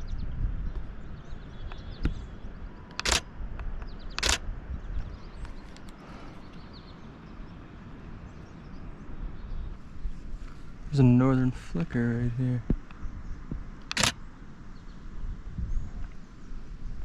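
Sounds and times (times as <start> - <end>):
camera shutter clacking: 2.9 - 3.2, 4.2 - 4.4, 13.8 - 14.2.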